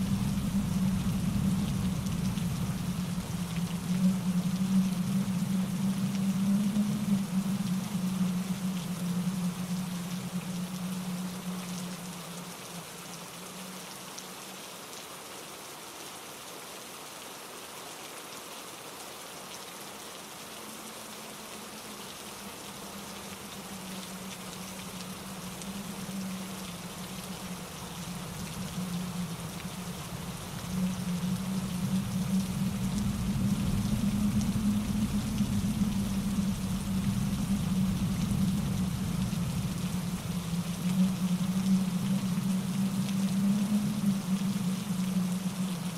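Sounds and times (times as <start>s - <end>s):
low rumble: 0.0s - 12.3s, 22.8s - 45.9s
steady rain hiss: 0.0s - 45.9s.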